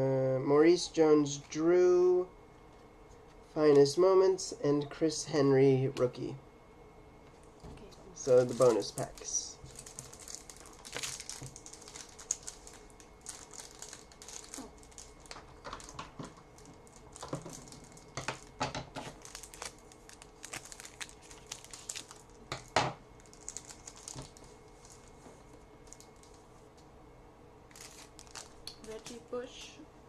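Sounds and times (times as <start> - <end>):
card pack wrapper tearing: 8.2 - 16.0, 16.6 - 25.1, 27.7 - 28.7.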